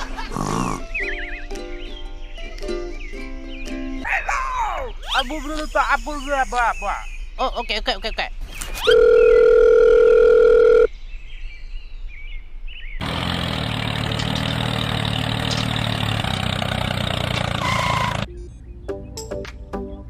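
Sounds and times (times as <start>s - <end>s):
engine running: 13.0s - 18.3s.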